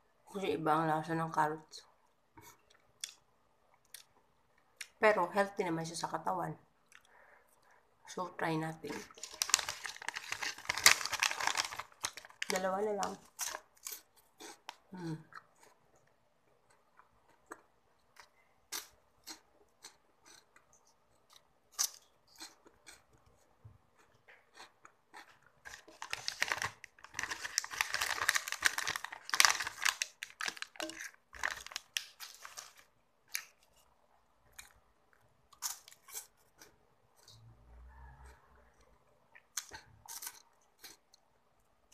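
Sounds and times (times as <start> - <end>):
crunchy chewing of wafer: 16.6 - 41.3.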